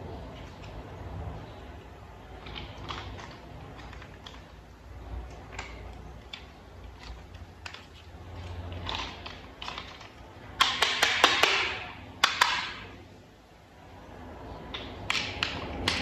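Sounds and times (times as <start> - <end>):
plastic toy parts clicking: 2.4 - 12.9, 14.7 - 16.0.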